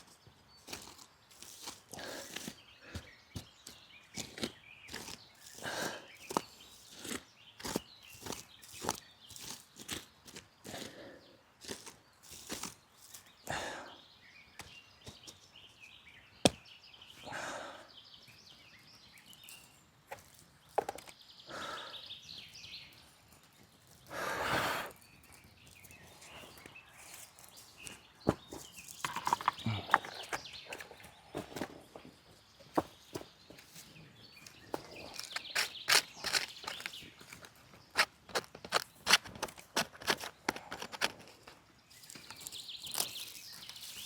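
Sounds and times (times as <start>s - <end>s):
dry leaves and twigs rustling: 0.0s - 10.9s, 11.6s - 13.4s, 19.0s - 21.4s, 24.9s - 44.0s.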